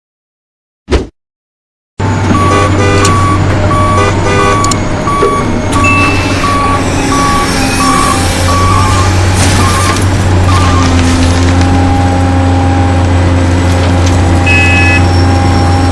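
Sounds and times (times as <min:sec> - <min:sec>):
electronic engine hum: 0:02.0 - 0:13.5, 0:14.1 - 0:15.9
reversing beeps: 0:02.3 - 0:11.0, 0:14.4 - 0:15.9.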